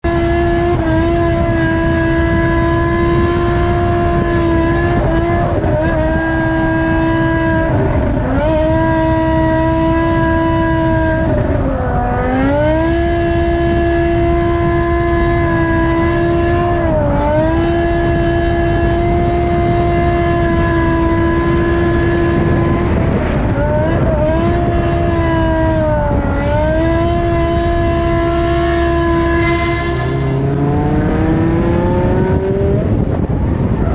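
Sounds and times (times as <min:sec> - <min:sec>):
car engine rumble: 0:00.0 - 0:33.9.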